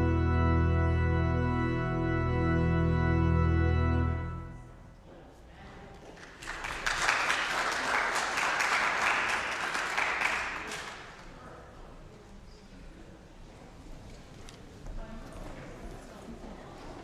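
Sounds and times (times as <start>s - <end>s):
congregation applauding: 6.1s - 11.4s.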